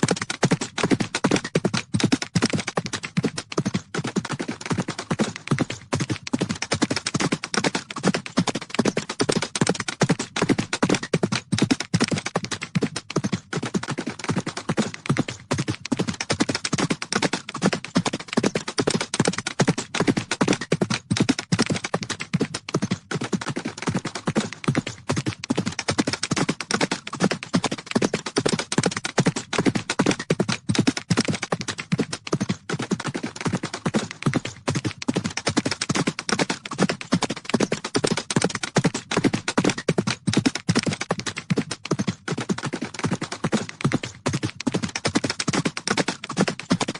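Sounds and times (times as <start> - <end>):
horses galloping: 0.0 - 46.9.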